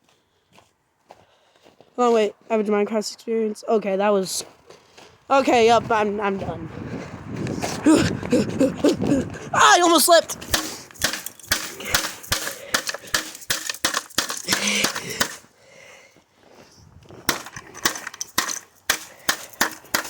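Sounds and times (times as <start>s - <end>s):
hard plastic being smashed: 10.4s - 15.4s, 17.2s - 20.0s.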